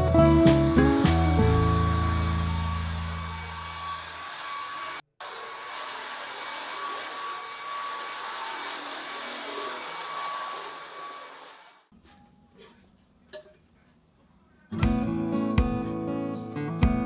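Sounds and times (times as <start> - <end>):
vacuum cleaner running: 0.0 - 11.8.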